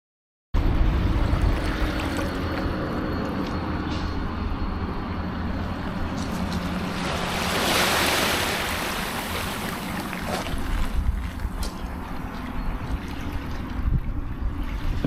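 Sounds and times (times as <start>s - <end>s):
wind rumbling on microphone: 0.6s - 15.0s
ocean surf washing in: 6.7s - 11.2s.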